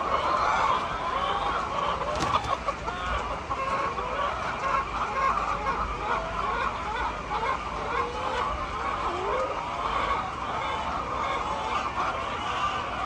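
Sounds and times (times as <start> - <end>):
hens clucking: 1.8 - 3.7.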